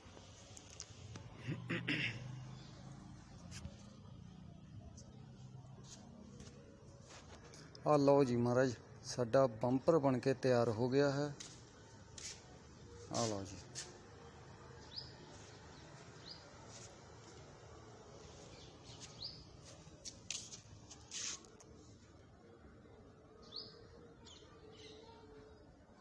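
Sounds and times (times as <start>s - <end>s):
faint birds chirping: 0.1s - 26.0s.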